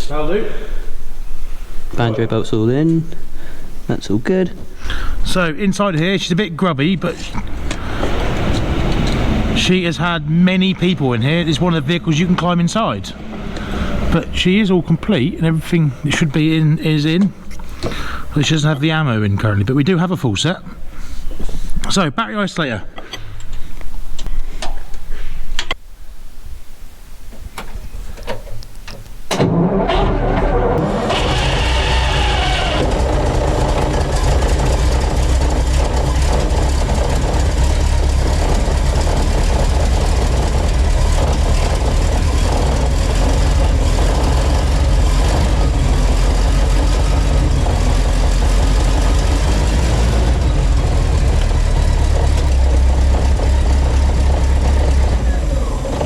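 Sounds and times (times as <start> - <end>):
engine starting: 7.3 - 9.8, 13.1 - 14.3, 29.3 - 50.6
engine revving and idling: 7.4 - 14.7, 29.4 - 56.0.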